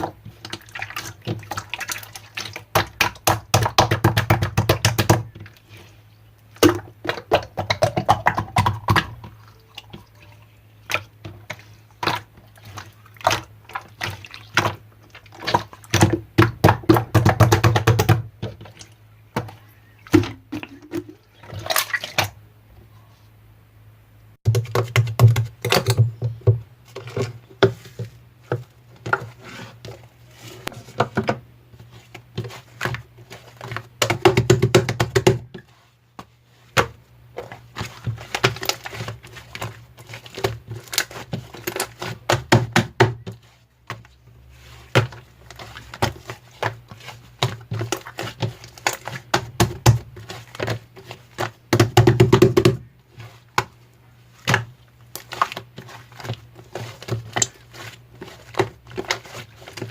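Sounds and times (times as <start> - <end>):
hands squishing slime: 0.0 - 22.4, 31.8 - 59.9.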